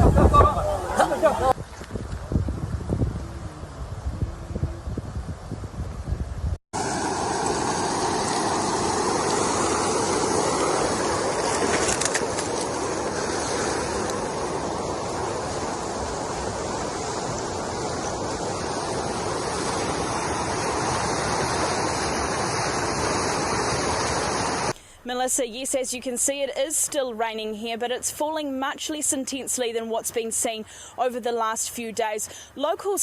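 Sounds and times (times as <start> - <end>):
floodwater rushing: 0.0 - 2.4, 6.8 - 24.8.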